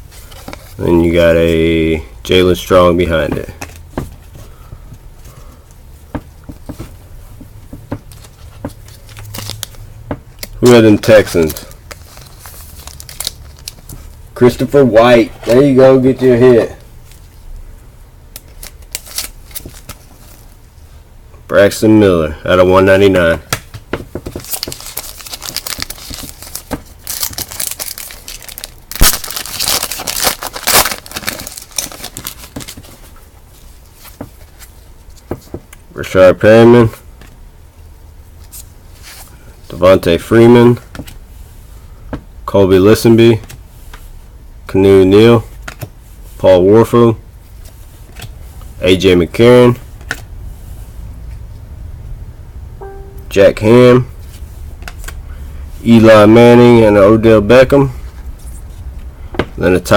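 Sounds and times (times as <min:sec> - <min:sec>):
wrapper crinkling and tearing: 0:10.4 - 0:14.0, 0:18.4 - 0:20.0, 0:24.4 - 0:33.0
faint low hum: 0:24.4 - 0:59.3.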